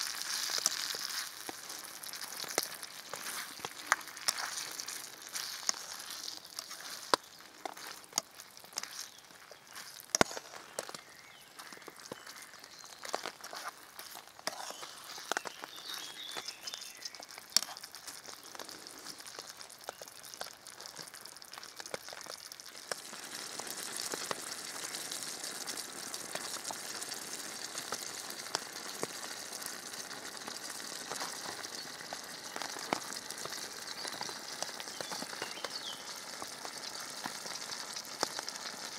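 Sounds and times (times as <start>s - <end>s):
food frying with pops and crackles: 0.0s - 38.9s
sizzling hiss: 0.0s - 38.9s.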